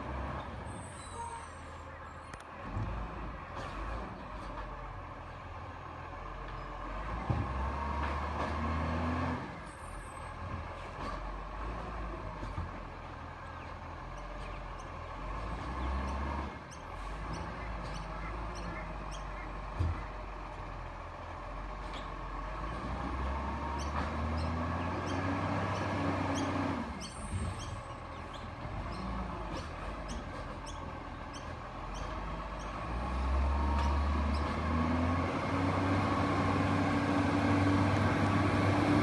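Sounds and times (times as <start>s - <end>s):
small squeaks and clicks: 21.8s - 22.2s, 23.8s - 32.8s.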